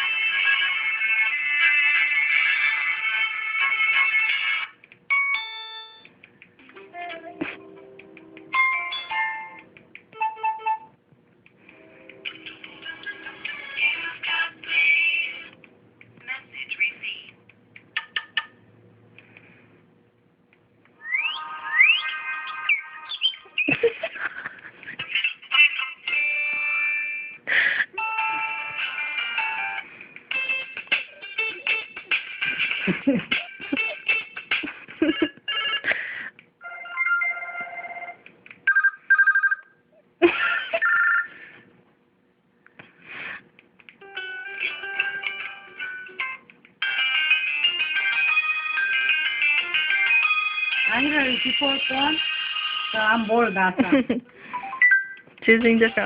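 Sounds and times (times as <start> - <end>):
bird-like chirps and whistles: 21.0 - 23.7
phone ringtones: 35.2 - 35.9, 36.6 - 39.8, 40.8 - 41.4, 54.5 - 55.2.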